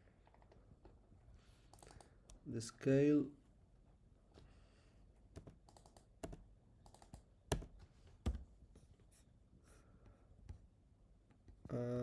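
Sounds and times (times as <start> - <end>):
computer keys typing: 1.7 - 2.4, 5.4 - 7.7.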